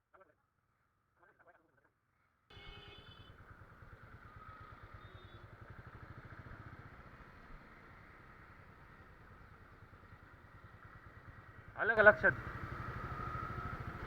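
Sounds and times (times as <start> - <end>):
faint motorcycle engine running: 2.5 - 14.0.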